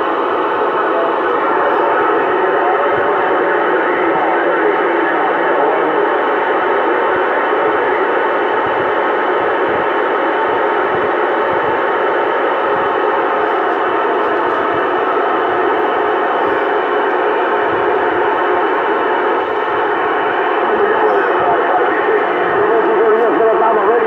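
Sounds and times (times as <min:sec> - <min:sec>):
faint steady tones: 0:00.0 - 0:24.0
radio static hiss: 0:00.0 - 0:24.0.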